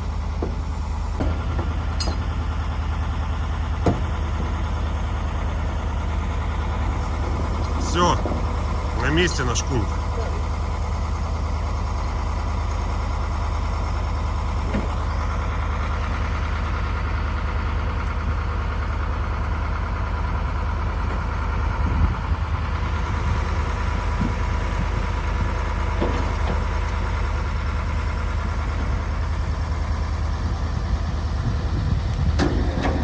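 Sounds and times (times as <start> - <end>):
truck engine idling: 0.0 - 33.0
thump: 3.8 - 4.5.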